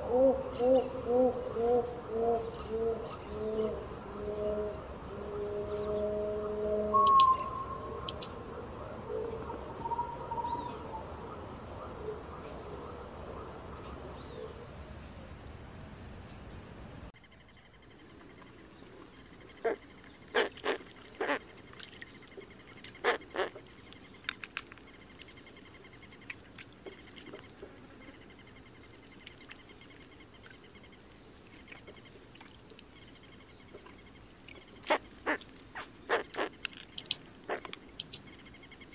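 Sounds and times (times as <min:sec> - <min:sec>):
bird calls: 0:00.0 - 0:08.4, 0:09.1 - 0:14.6, 0:32.9 - 0:38.9
faint insect trill: 0:00.0 - 0:38.9
insect chorus: 0:00.0 - 0:38.9
sharp clicks: 0:07.0 - 0:07.4, 0:08.1 - 0:08.3, 0:36.6 - 0:38.3.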